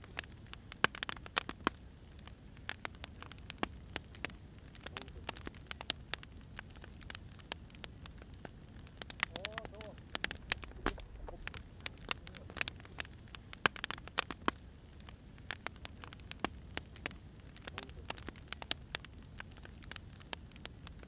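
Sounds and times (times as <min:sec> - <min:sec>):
firewood crackling: 0:00.0 - 0:21.0
soft low rumble: 0:05.0 - 0:19.9.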